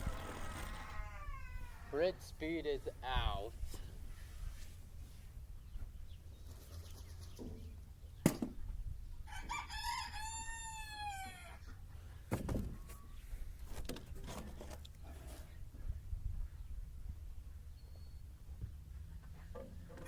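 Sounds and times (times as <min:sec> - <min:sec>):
long falling animal call: 0:00.0 - 0:01.9.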